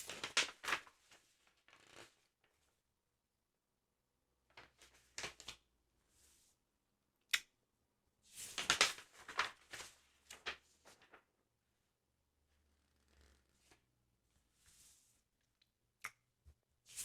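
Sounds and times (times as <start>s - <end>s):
paper pages crinkling and rustling: 0.0s - 2.2s, 4.5s - 5.6s, 8.4s - 11.3s.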